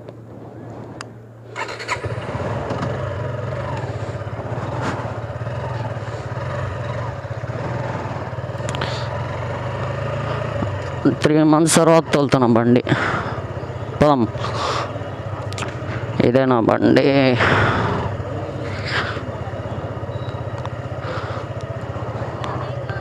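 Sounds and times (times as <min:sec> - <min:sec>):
motorcycle engine starting and running: 0:01.5 - 0:23.0.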